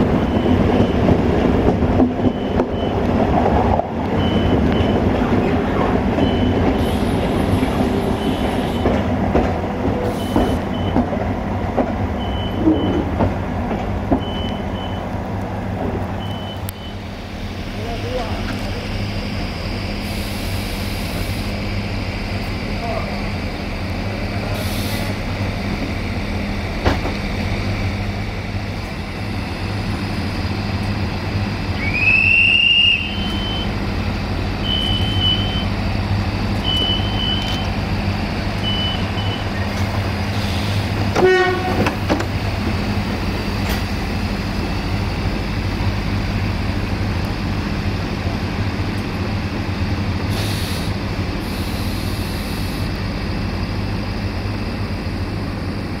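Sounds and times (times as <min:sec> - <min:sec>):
railcar engine and wheel drone: 0:00.0 - 0:56.0.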